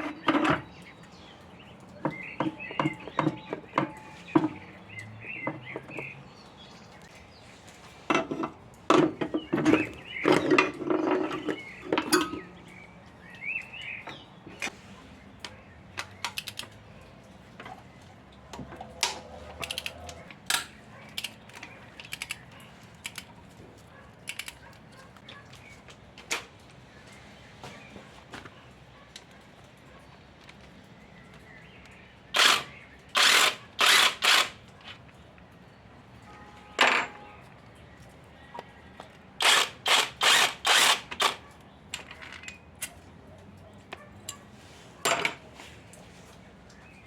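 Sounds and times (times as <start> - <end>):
metal tools clinking: 8.1 - 12.8, 18.8 - 23.3, 24.2 - 25.2, 44.2 - 45.4.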